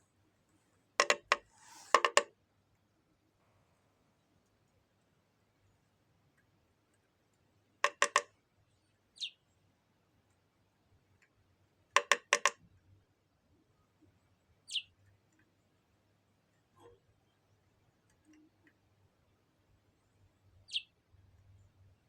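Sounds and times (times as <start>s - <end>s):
bird pecking on window glass: 1.0s - 2.3s, 7.8s - 8.3s, 12.0s - 12.6s
high falling bird chirp: 9.2s - 9.4s, 14.7s - 14.9s, 20.7s - 20.9s.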